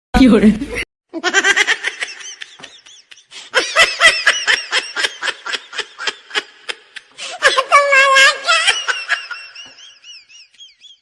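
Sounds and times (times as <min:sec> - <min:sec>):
rhythmic laughter: 0:00.7 - 0:07.2.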